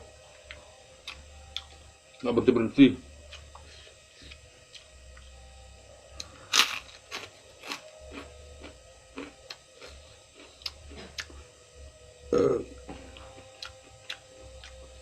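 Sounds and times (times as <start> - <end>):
crunchy vegetable chewing: 6.2 - 11.4, 12.4 - 14.9
dull mouth sound: 12.3 - 12.9.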